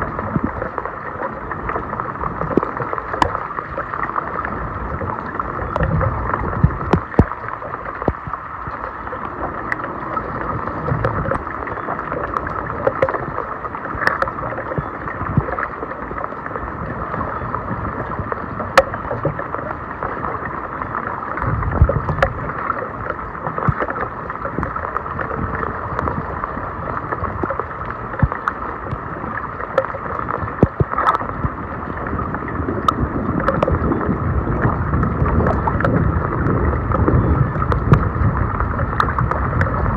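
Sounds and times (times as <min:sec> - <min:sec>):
sharp clicks and knocks: 0:05.8 - 0:07.4.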